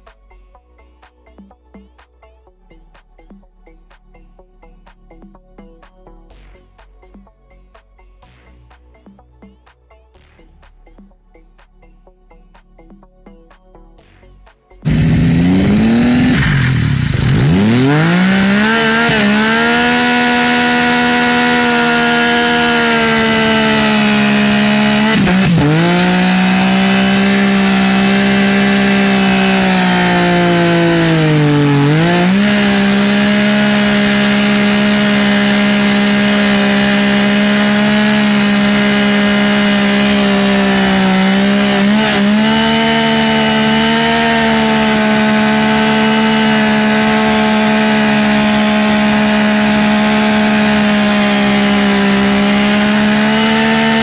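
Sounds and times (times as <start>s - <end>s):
motorcycle engine revving high: 14.8s - 54.0s.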